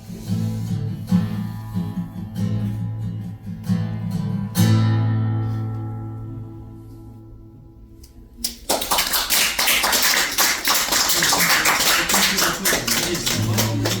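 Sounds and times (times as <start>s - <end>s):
acoustic guitar chord: 0.3s - 8.4s
audience applause: 8.6s - 14.0s.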